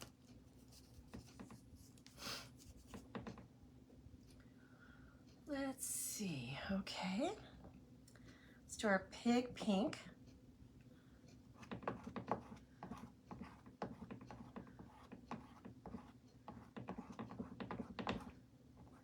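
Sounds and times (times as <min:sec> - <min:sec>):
light taps and scrapes on chalkboard: 0:00.0 - 0:03.5, 0:11.3 - 0:19.0.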